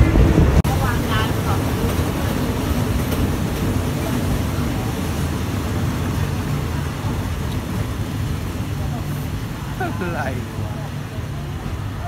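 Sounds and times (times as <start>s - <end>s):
rushing air: 0.0s - 12.0s
train wheels rumbling on track: 0.0s - 12.0s.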